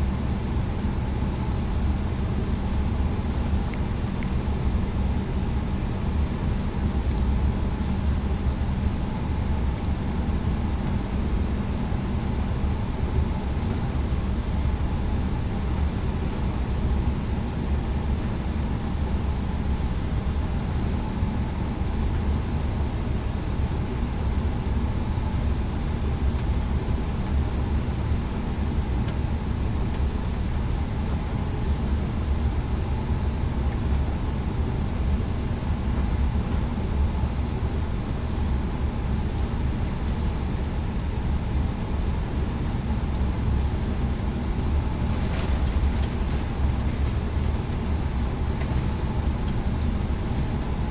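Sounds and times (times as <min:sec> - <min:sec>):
airliner cabin rumble: 0:35.7 - 0:50.9.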